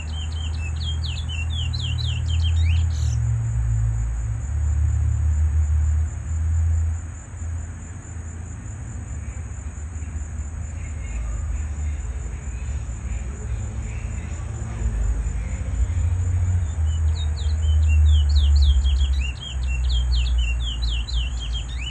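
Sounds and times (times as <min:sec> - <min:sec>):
bird chirping rapidly: 0:00.0 - 0:03.2, 0:16.5 - 0:21.9
high insect whine: 0:00.0 - 0:21.9.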